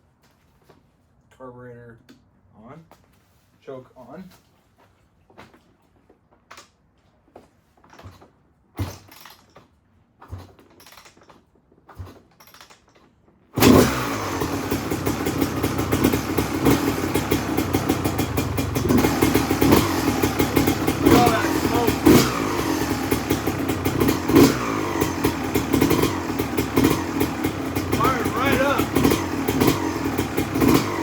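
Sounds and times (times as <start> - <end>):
two-stroke engine running: 13.6 - 31.0.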